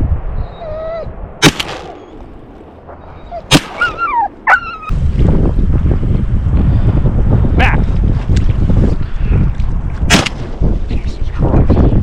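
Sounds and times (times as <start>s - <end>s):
wind noise on microphone: 0.0s - 2.3s, 2.9s - 12.0s
dog whining and yelping: 0.4s - 1.1s, 2.9s - 5.0s
shotgun shots: 1.4s - 2.1s, 3.5s - 4.0s, 10.1s - 10.5s.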